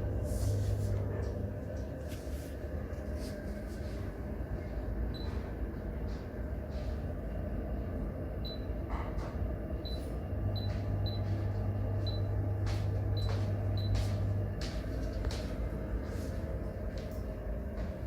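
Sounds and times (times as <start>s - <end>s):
steady background noise: 0.0s - 18.0s
stove low hum: 0.0s - 18.0s.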